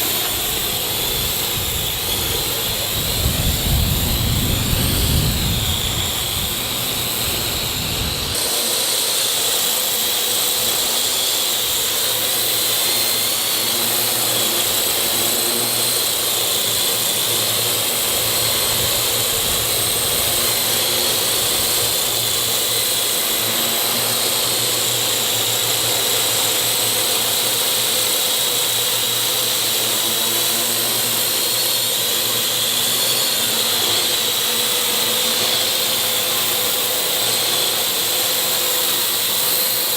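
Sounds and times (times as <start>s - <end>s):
drone propellers whining: 0.0s - 39.9s
wind rumbling on microphone: 0.3s - 8.4s.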